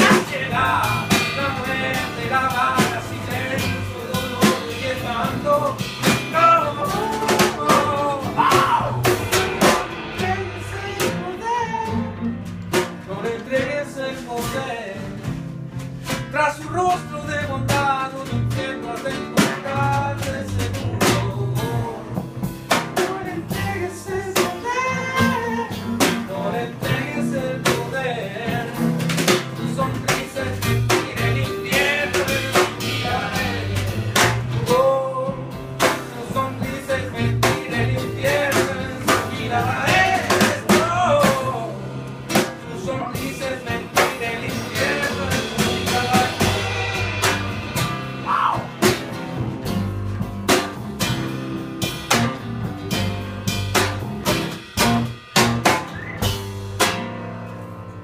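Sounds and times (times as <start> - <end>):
electric guitar: 0.0 - 12.7, 28.0 - 57.2
live rock band playing: 0.0 - 58.0.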